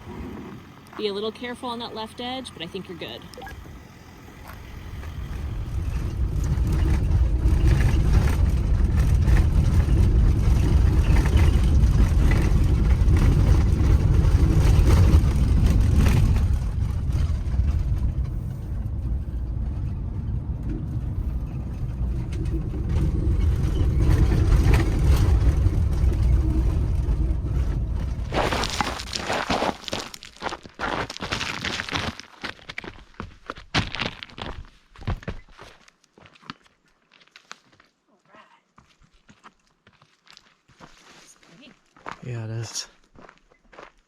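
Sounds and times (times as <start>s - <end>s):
van engine and tyres rumbling: 0.0s - 35.9s
knocks from rough gravel road: 3.6s - 36.7s.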